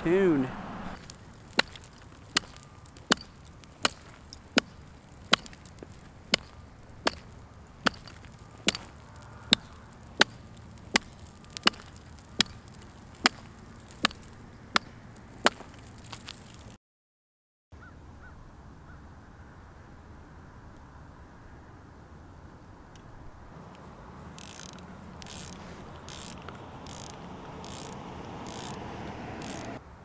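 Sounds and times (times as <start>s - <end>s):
axe chopping into ice: 1.0s - 16.6s.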